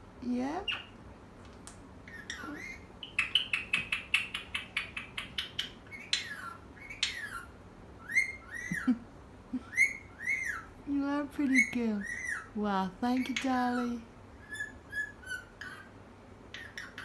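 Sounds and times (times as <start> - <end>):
parrot chirping: 0.5 - 1.0, 2.0 - 9.0, 9.6 - 17.0
parrot whistling: 2.1 - 8.9, 9.7 - 10.7, 11.6 - 12.5, 14.4 - 15.9, 16.5 - 17.0.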